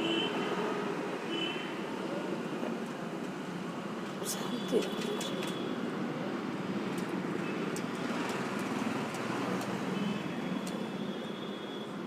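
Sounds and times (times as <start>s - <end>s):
distant traffic rumble: 2.4s - 10.8s.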